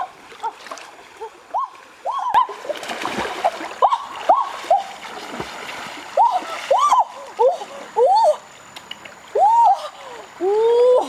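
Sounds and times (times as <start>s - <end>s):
water splashing in a river: 0.0s - 8.0s.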